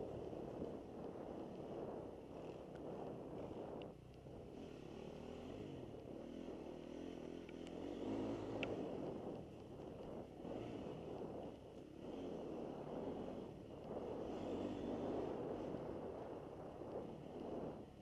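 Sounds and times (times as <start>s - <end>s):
dirt bike engine revving: 4.6s - 9.5s, 10.2s - 11.2s, 11.8s - 15.7s.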